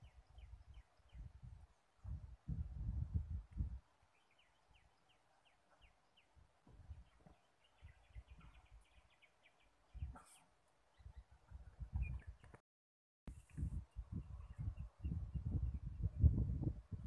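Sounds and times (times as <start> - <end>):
small bird chirping: 4.1 - 12.6.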